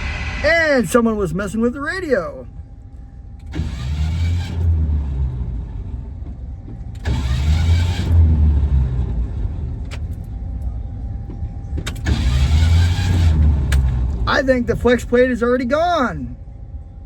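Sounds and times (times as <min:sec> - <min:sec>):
steady low rumble: 0:00.0 - 0:03.6, 0:05.1 - 0:07.1, 0:08.6 - 0:12.0, 0:13.8 - 0:17.0
car starter cranking: 0:03.4 - 0:05.1, 0:06.9 - 0:08.4, 0:11.8 - 0:14.2.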